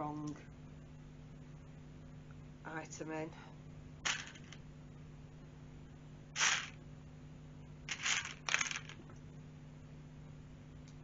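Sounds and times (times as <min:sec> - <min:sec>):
faint low hum: 0:00.0 - 0:11.0
plastic toy bricks rattling: 0:04.1 - 0:04.6, 0:06.4 - 0:06.8, 0:07.9 - 0:09.0.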